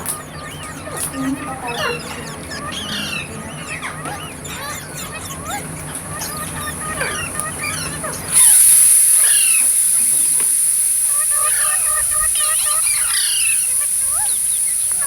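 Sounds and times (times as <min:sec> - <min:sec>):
parrots chirping and chattering: 0:00.0 - 0:15.0
steady high-pitched hiss: 0:06.0 - 0:15.0.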